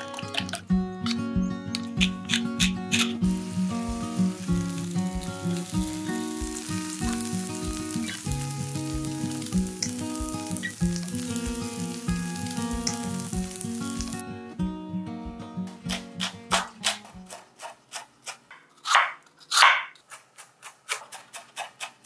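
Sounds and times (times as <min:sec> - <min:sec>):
gentle plucked music: 0:00.0 - 0:16.3
batter sizzling in oil: 0:03.0 - 0:14.2.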